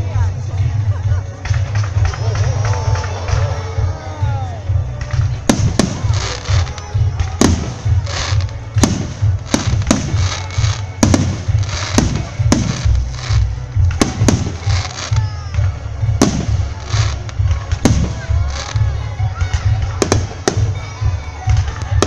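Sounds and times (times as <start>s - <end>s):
firework booms: 5.0s - 18.9s.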